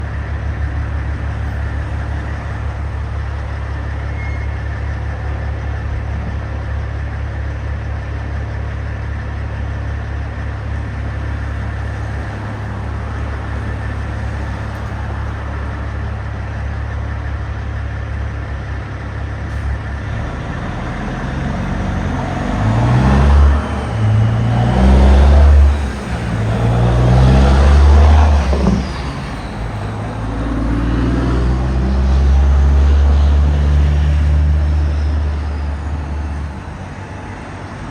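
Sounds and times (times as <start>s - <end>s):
truck engine idling: 0.0s - 37.9s
truck engine revving: 10.4s - 16.2s, 19.4s - 37.9s.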